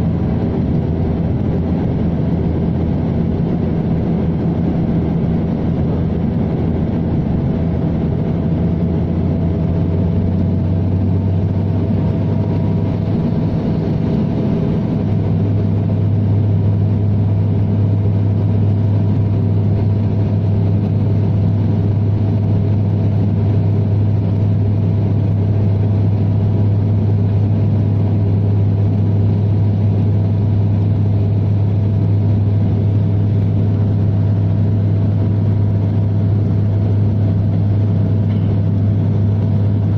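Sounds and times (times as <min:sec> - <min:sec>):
low propeller drone: 0:00.0 - 0:39.9.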